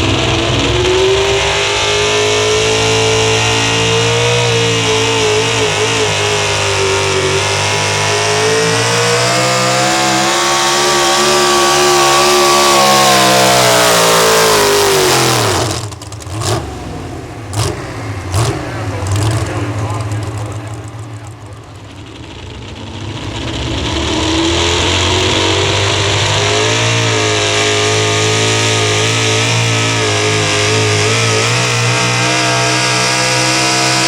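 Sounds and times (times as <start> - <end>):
truck engine at high revs: 0.0 - 34.0.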